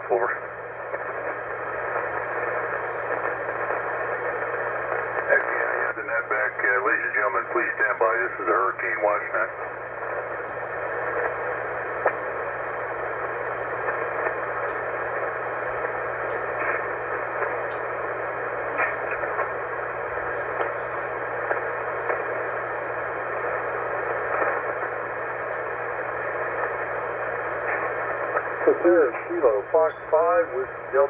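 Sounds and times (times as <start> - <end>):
low steady hum: 0.0 - 31.0
radio band hiss: 0.0 - 31.0
static crackles: 0.0 - 31.0.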